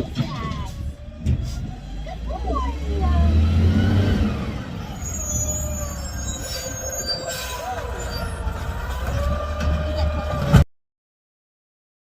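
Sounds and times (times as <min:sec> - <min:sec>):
diesel engine rumbling: 0:00.0 - 0:10.6
high metallic squealing: 0:04.8 - 0:10.5.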